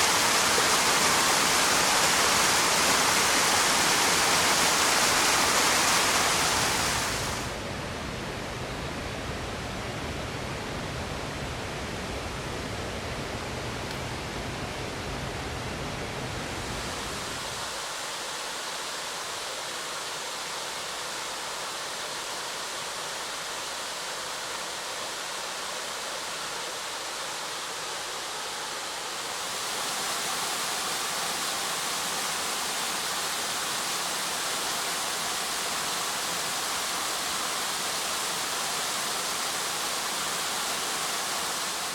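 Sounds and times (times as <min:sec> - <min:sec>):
waterfalls rushing: 0:00.0 - 0:07.8, 0:14.2 - 0:41.9.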